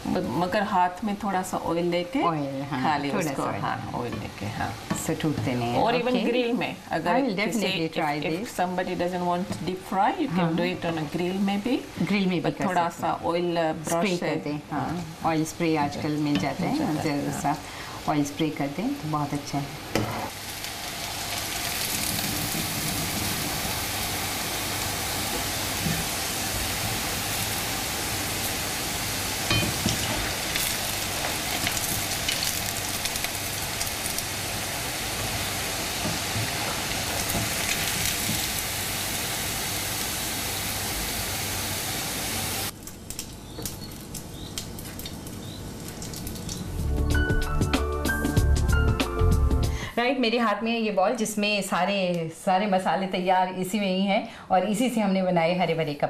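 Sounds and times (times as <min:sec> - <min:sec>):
food frying in hot oil: 0:00.0 - 0:47.6.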